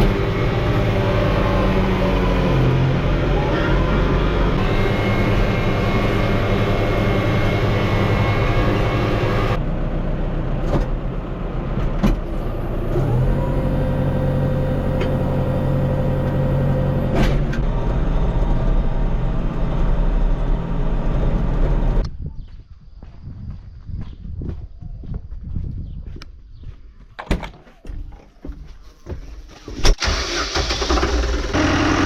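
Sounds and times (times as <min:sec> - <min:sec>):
vehicle engine running: 0:00.0 - 0:22.0, 0:30.0 - 0:32.0.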